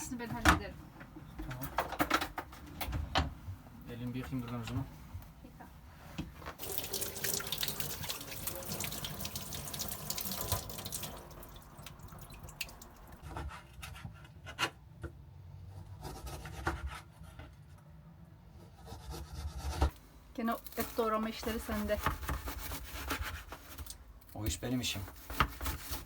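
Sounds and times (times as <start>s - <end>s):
water running from a tap: 6.6s - 13.2s.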